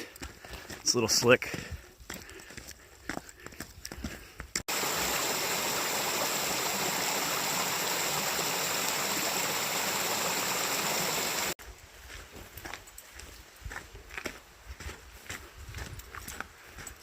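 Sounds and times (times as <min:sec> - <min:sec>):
stream water rushing: 0:04.7 - 0:11.6.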